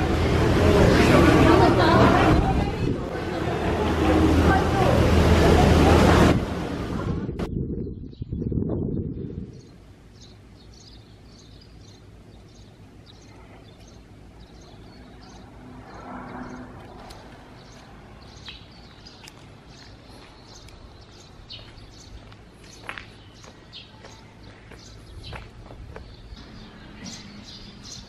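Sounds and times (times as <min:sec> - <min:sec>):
quiet street ambience: 0:00.0 - 0:07.5, 0:09.2 - 0:28.0
small birds chirping: 0:07.5 - 0:28.0.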